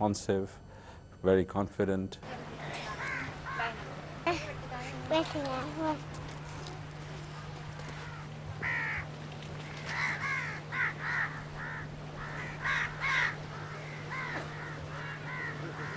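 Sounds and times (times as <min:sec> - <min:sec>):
low electrical hum: 0:00.0 - 0:15.9
crows cawing: 0:02.5 - 0:05.1, 0:07.2 - 0:15.9.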